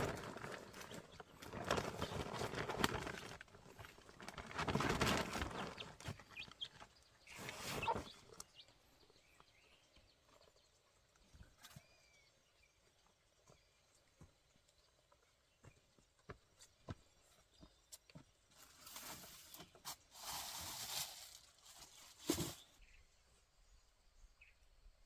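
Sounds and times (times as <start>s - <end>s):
birds rustling: 0.0s - 8.8s.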